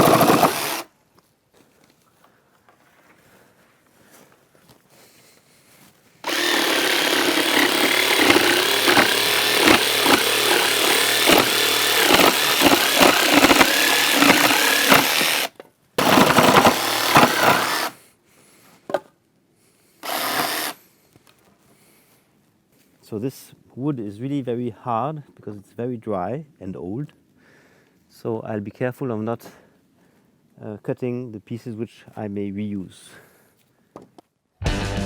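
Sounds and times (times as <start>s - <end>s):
jigsaw cutting wood: 0.0s - 0.9s, 6.2s - 18.0s, 20.0s - 20.8s.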